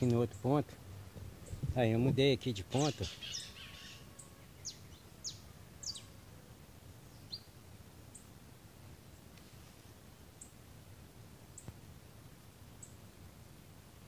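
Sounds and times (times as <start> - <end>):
low outdoor background noise: 0.0 - 14.0
faint high bird chirps: 2.7 - 6.1.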